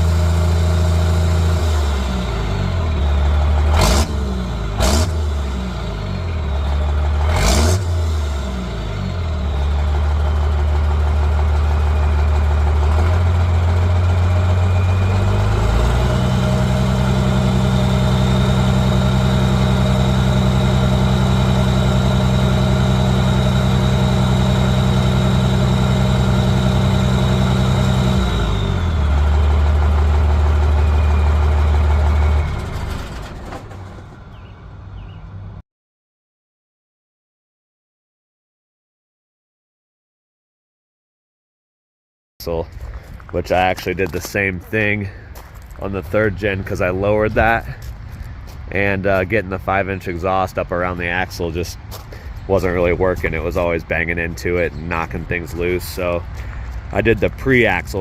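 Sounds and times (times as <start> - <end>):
diesel engine revving and idling: 0.0 - 35.6, 42.4 - 58.0.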